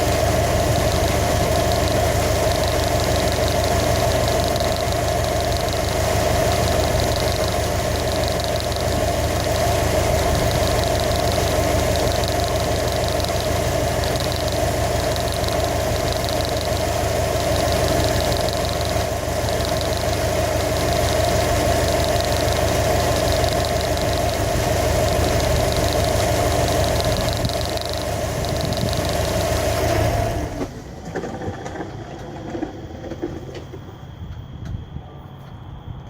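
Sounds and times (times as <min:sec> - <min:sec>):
car engine idling: 0:00.0 - 0:32.9
fast light ticking: 0:02.5 - 0:09.0, 0:10.2 - 0:29.4.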